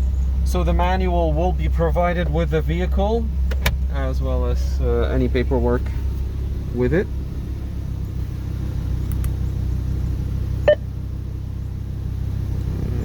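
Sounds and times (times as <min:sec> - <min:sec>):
car engine idling: 0:00.0 - 0:13.0
short electronic beep: 0:10.7 - 0:10.9.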